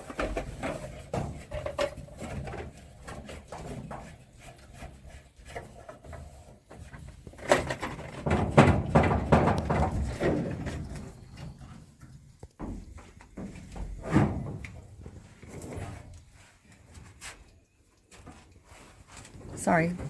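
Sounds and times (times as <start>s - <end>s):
parts knocking and rattling: 0.0s - 15.9s.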